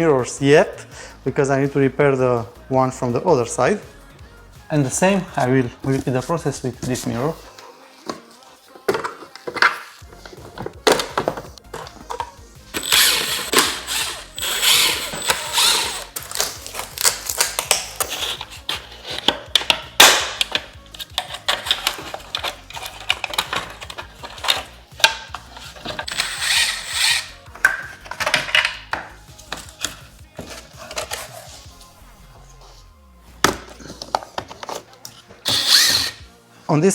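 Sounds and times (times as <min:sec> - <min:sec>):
tools clicking and knocking on plastic: 0:08.9 - 0:31.3.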